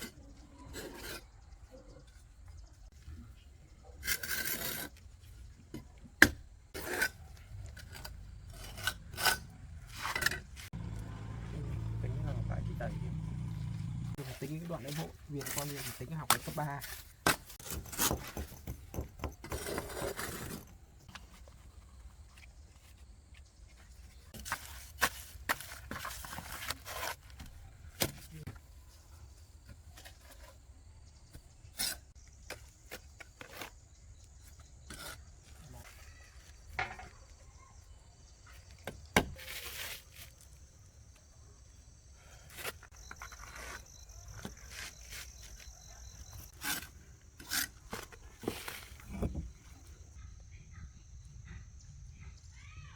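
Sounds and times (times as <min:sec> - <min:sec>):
scraping and rustling: 0:39.3 - 0:40.6, 0:42.5 - 0:49.8.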